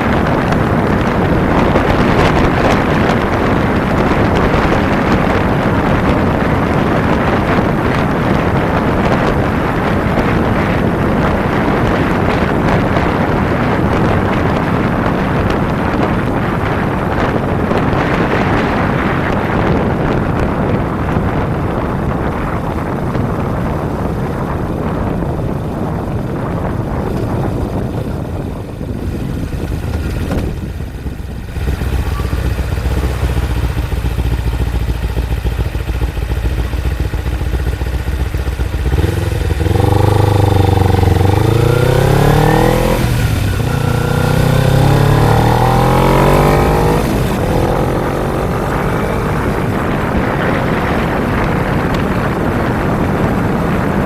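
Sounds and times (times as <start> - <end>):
motorcycle engine accelerating: 0.0 - 54.0
wind noise: 0.0 - 54.0.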